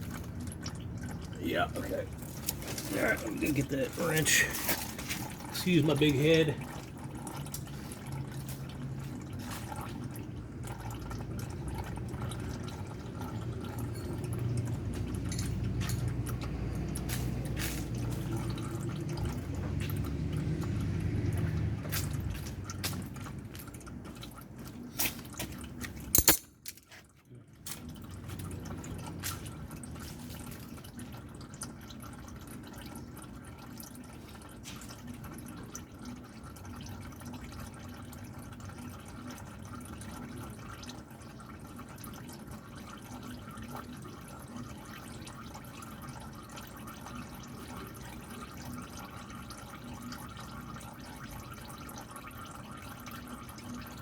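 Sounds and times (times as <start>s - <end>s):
oil dripping into a pan: 0.0s - 54.0s.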